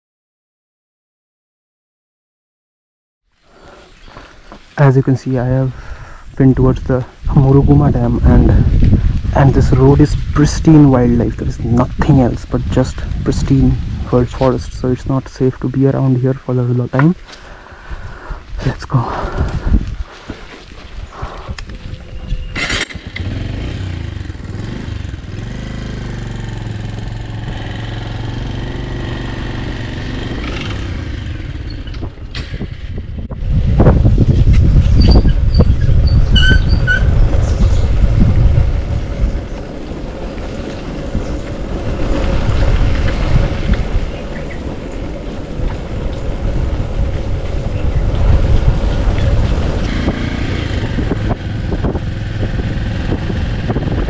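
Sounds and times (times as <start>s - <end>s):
wind rush on microphone: 3.5s - 16.4s, 17.1s - 54.0s
motorcycle engine running: 21.8s - 54.0s.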